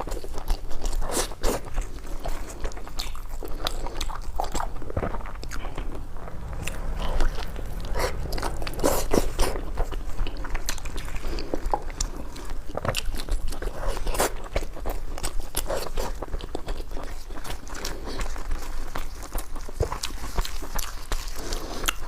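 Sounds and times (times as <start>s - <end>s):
person chewing food: 0.0s - 5.8s.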